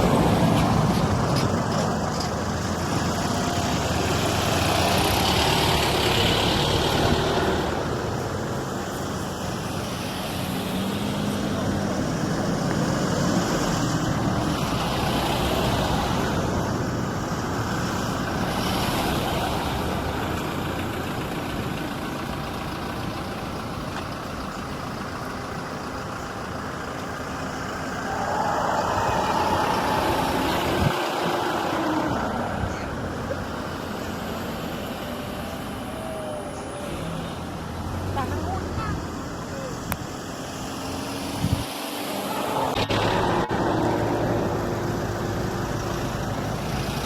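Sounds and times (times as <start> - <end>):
vehicle engine running: 0.0 - 40.7.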